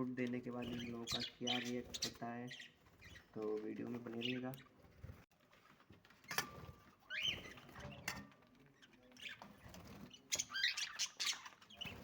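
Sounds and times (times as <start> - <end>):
budgerigars chirping: 0.5 - 3.4, 7.1 - 8.1, 9.2 - 12.0.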